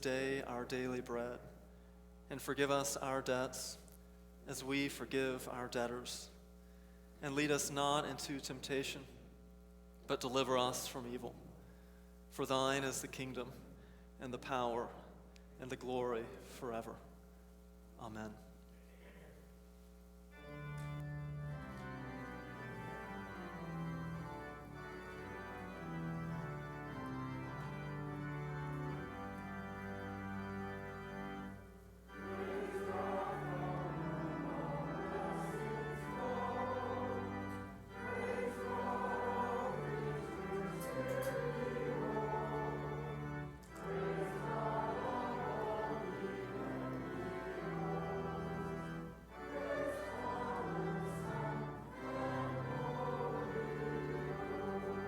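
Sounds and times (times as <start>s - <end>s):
organ: 20.2s - 55.0s
choir singing: 31.1s - 55.0s.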